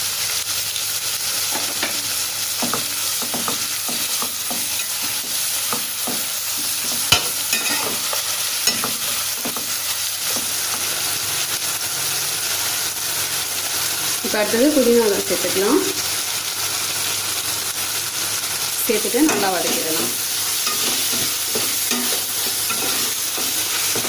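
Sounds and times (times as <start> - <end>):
food sizzling in hot oil: 0.0 - 24.0
spoon scraping a pan: 1.5 - 10.9, 19.0 - 24.0.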